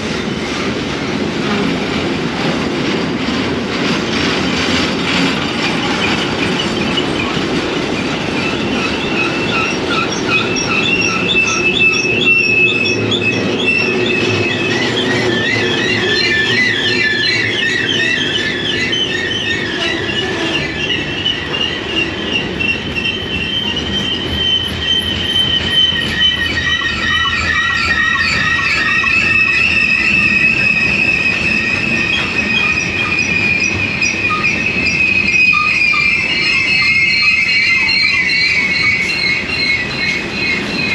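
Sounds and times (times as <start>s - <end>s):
train cars rolling rumble: 0.0s - 40.9s
train wheels squealing: 0.0s - 40.9s.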